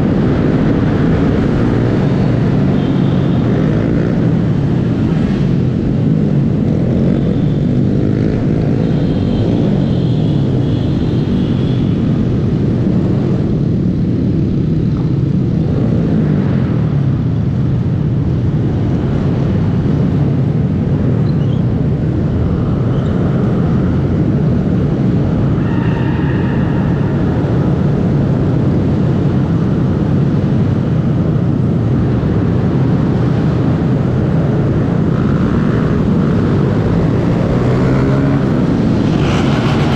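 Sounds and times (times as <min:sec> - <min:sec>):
wind and road noise: 0:00.0 - 0:39.9
motorcycle engine running: 0:34.6 - 0:39.9.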